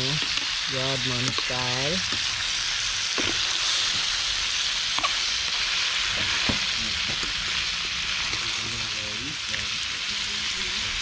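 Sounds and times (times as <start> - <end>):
metal tongs stirring: 0.0 - 2.4, 5.0 - 5.3
food sizzling in hot oil: 0.0 - 11.0.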